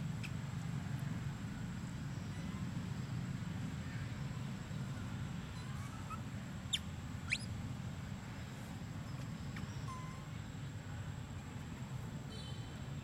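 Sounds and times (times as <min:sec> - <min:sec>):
birds chirping: 0:03.8 - 0:07.6.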